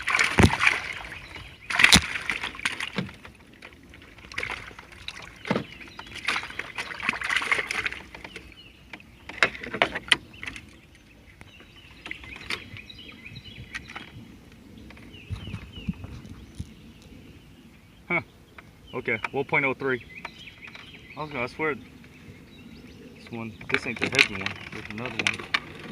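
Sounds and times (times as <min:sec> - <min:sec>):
water splashing and sloshing: 0:00.0 - 0:17.2, 0:20.2 - 0:25.9
sharp knocks: 0:00.2 - 0:00.8.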